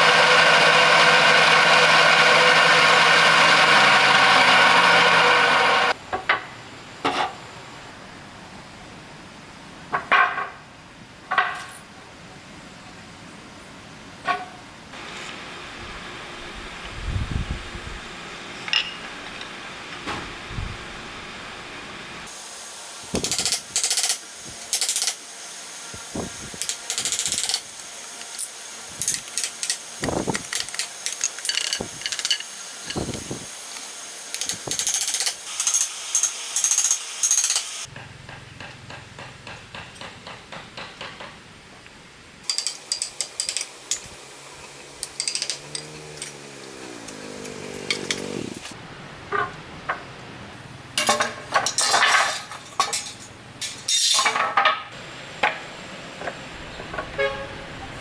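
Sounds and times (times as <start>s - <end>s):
sharp wooden knocks: 37.9s - 41.4s.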